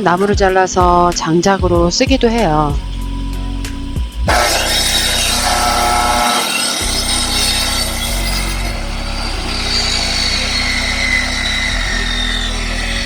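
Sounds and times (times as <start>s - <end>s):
powered saw cutting logs: 3.6s - 13.0s.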